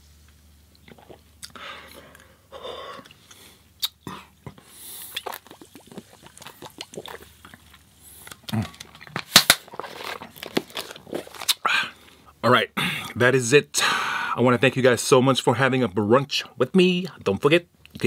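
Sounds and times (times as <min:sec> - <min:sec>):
wet mouth sounds: 0:00.7 - 0:09.2
person chewing crunchy food: 0:00.8 - 0:12.2.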